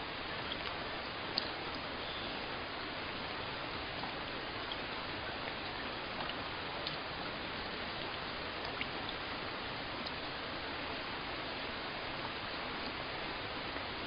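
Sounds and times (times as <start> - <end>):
steady rain hiss: 0.0 - 14.0
raindrop ticks: 0.4 - 1.9.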